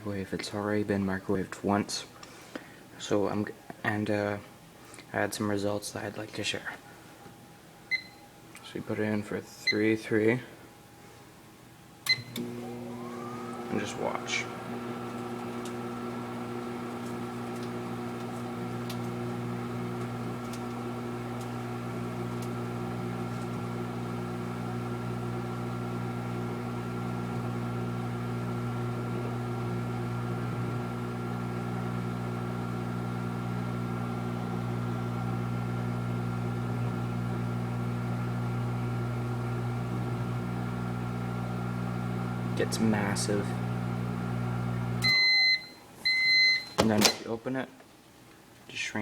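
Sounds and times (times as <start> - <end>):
microwave oven humming: 12.0 - 46.8.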